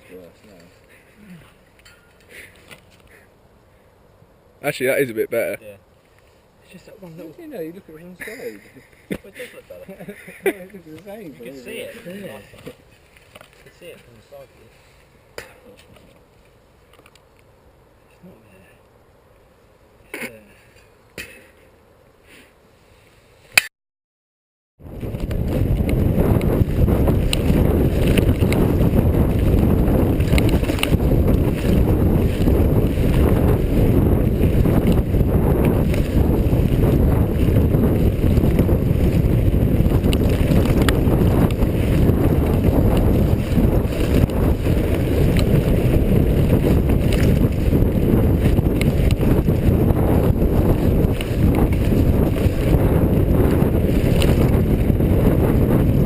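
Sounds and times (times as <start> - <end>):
bike tyres rumbling: 24.8 - 56.0
wind buffeting microphone: 24.8 - 56.0.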